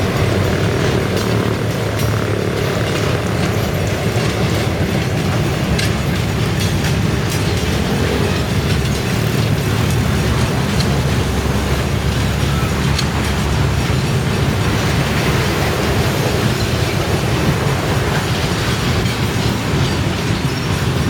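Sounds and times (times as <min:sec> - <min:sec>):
freight train rumble: 0:00.0 - 0:21.0
wheel clicks over rail joints: 0:00.0 - 0:21.0.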